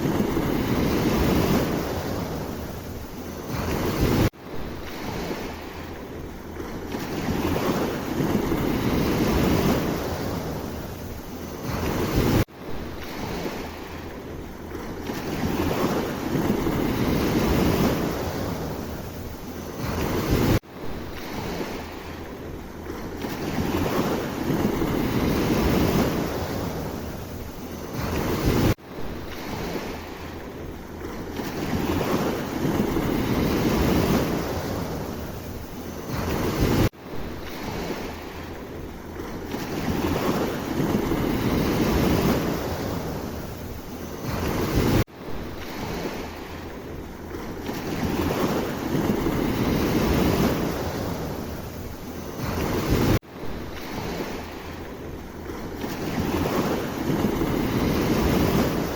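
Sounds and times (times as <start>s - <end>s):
sea waves washing: 0.0s - 58.9s
wind rumbling on microphone: 0.0s - 58.9s.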